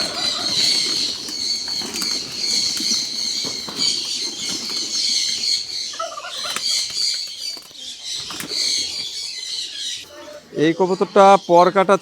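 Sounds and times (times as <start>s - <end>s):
pigeons' wings fluttering: 0.0s - 9.2s
small birds chirping: 0.0s - 12.0s.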